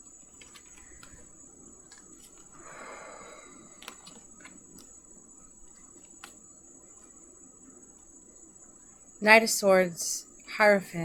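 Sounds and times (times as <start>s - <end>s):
faint high-pitched whine: 0.0s - 11.0s
cards clicking: 0.2s - 5.0s, 5.6s - 6.4s
person sighing: 2.6s - 4.0s.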